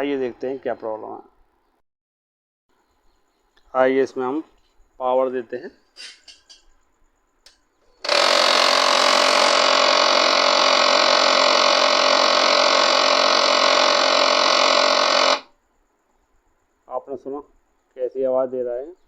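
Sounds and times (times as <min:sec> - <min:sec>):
laser printer humming: 0:09.8 - 0:15.5.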